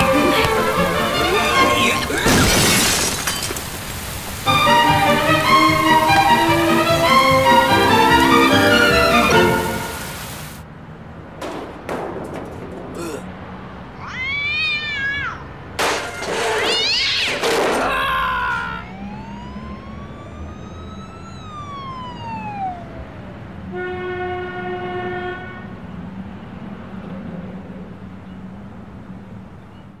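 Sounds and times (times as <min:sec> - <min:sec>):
noisy burst: 0:00.0 - 0:10.6
rising and falling glide: 0:18.8 - 0:23.2.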